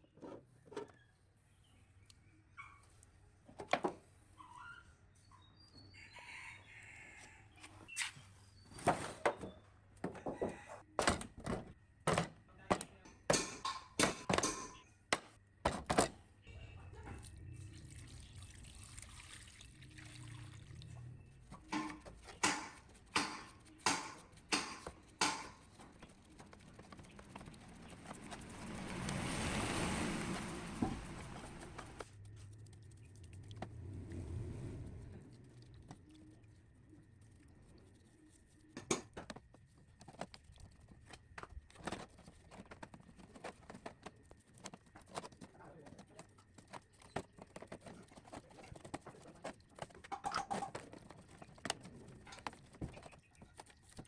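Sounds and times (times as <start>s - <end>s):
hissing pouring noise: 17.2s - 21.0s, 26.9s - 35.8s
sharp knocks and taps: 21.7s - 26.0s.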